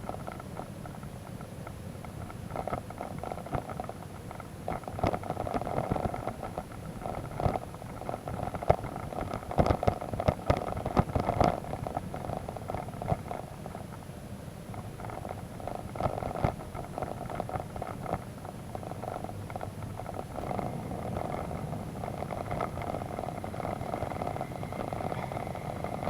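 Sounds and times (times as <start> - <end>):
motorcycle engine at low revs: 15.7 - 26.0.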